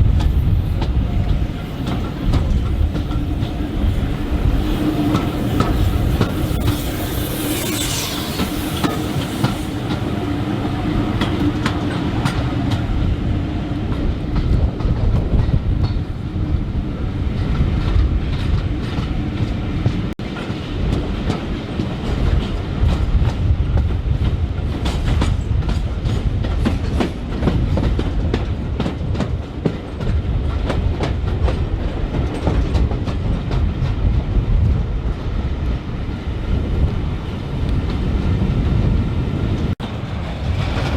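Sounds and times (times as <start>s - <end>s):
train wheels clattering over rail joints: 0.0s - 13.0s, 17.6s - 34.8s.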